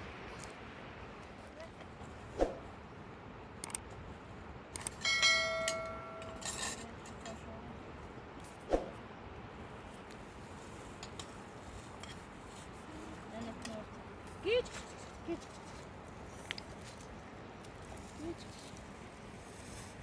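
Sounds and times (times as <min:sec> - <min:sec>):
metal kitchenware ringing strike: 0:05.1 - 0:06.6.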